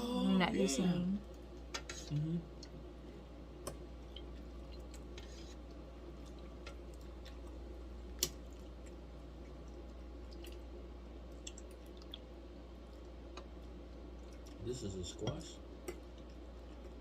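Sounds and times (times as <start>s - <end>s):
steady low hum: 0.0s - 17.0s
faint chewing: 3.7s - 14.6s, 15.8s - 17.0s.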